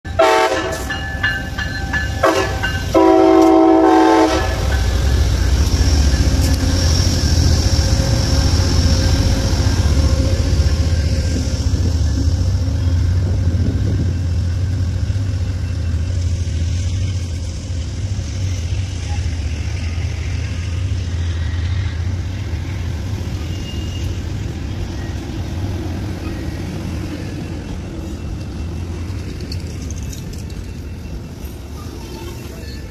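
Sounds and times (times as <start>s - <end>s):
locomotive horn blasts: 0.1s - 1.1s, 2.2s - 4.8s
train rumbling past: 0.1s - 32.9s.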